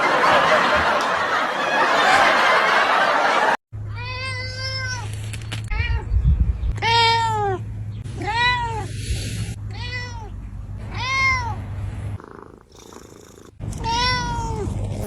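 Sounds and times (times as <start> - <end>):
cat meowing: 10.9 - 11.6, 13.7 - 14.7.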